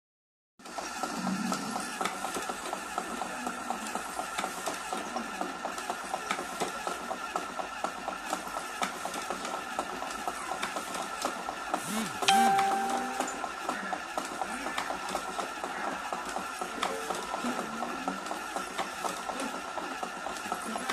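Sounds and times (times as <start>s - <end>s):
brief held tone: 12.2s - 13.5s.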